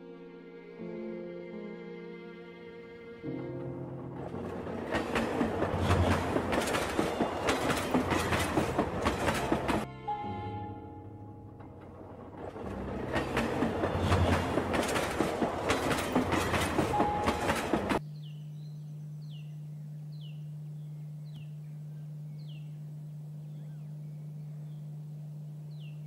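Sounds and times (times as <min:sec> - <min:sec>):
train running past: 0:03.2 - 0:18.0
steady low hum: 0:18.0 - 0:26.0.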